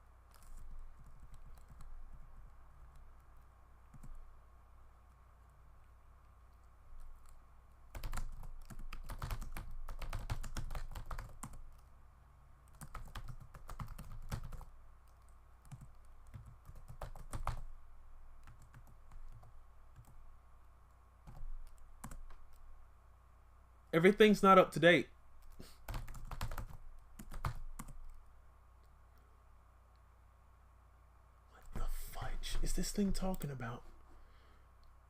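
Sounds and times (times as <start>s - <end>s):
typing on a keyboard: 0.3s - 4.2s, 6.5s - 11.9s, 12.7s - 17.7s, 18.4s - 20.2s, 21.2s - 22.6s, 25.4s - 28.2s.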